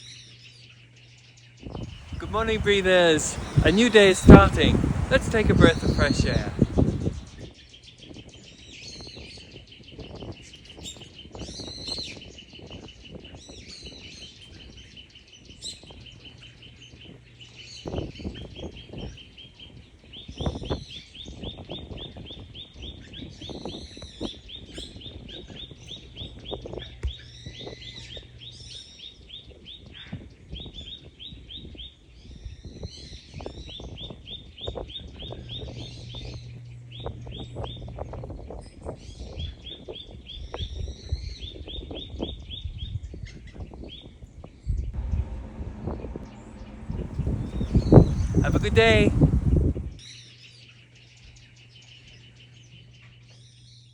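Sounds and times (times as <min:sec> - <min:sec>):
birds chirping: 0:01.8 - 0:07.4, 0:45.0 - 0:50.0
low background rumble: 0:45.0 - 0:50.0
bird trilling: 0:46.0 - 0:49.7.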